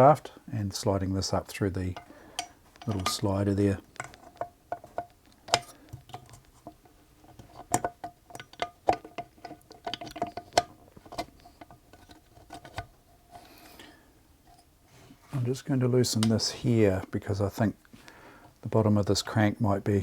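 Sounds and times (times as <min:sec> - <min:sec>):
small metallic clicks and taps: 0:01.9 - 0:12.9.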